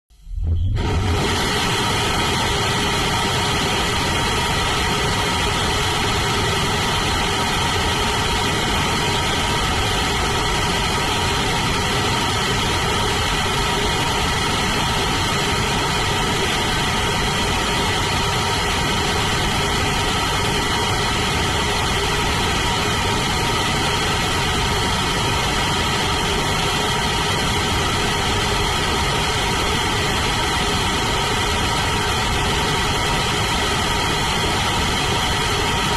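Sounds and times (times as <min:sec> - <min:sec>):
rocket engine roaring: 0:00.2 - 0:35.9.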